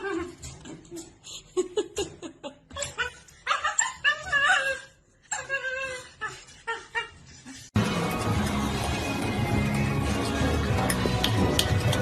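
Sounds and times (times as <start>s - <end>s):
dog yipping: 2.7s - 7.3s
dog whining: 2.7s - 7.6s
music: 7.8s - 12.0s.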